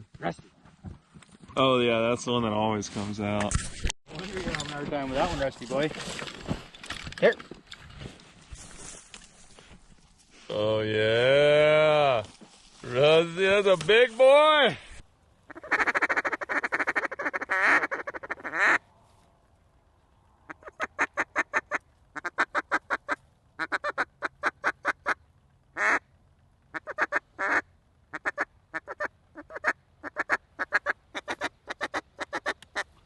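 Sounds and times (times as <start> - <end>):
waterfowl call sharp notes: 15.5 - 18.8
waterfowl call wavering: 15.5 - 18.8, 26.7 - 33.0.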